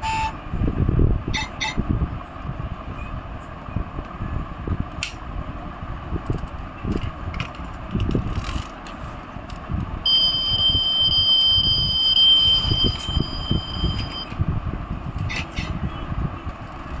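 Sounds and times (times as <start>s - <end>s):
high electronic beep tone: 10.1s - 14.4s.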